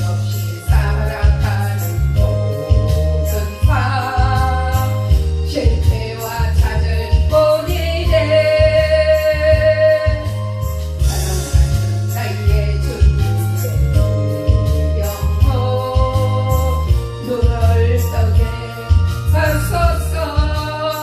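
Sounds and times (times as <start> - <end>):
person singing a hymn: 0.0 - 21.0
band accompaniment: 9.5 - 16.3.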